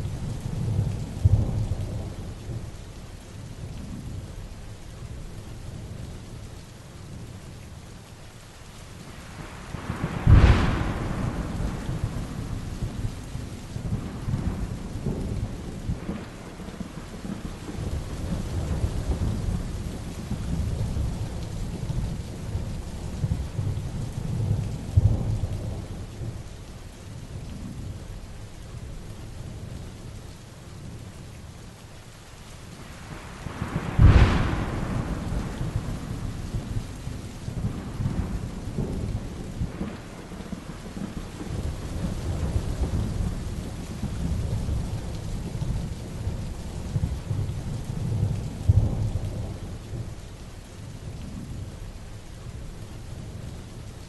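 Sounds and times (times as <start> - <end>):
heavy rain: 0.0 - 54.0
rolling thunder: 9.4 - 26.5, 33.0 - 50.2
sharp thunderclap: 9.7 - 21.3, 33.4 - 45.9.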